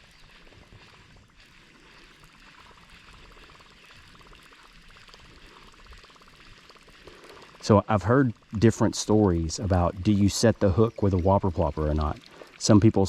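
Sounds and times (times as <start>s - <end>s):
river water trickling: 0.0s - 13.0s.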